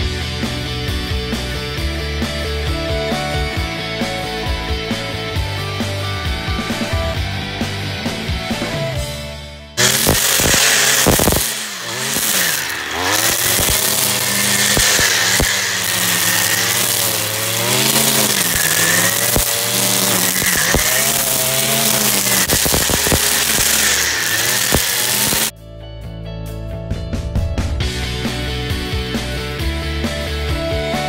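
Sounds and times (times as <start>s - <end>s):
string trimmer engine revving: 9.8s - 25.5s
trimmer line ticking: 9.8s - 25.5s.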